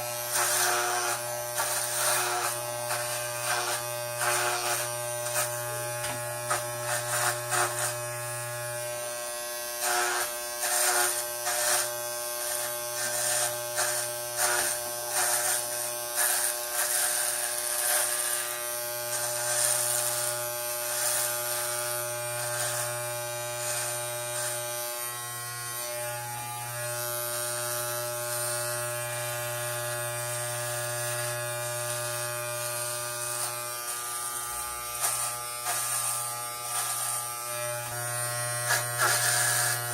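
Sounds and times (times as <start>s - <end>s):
electric hair clippers buzzing: 0.0s - 39.9s
clipper blades crackling through hair: 9.8s - 18.4s, 32.7s - 39.9s.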